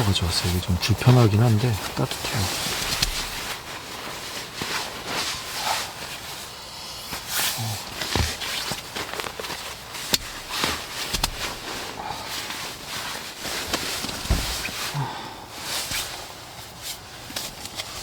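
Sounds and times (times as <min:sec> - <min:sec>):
soft footsteps: 0:00.0 - 0:06.5, 0:08.0 - 0:14.9
rustling of person moving: 0:00.0 - 0:18.0
low thumps: 0:14.2 - 0:14.7.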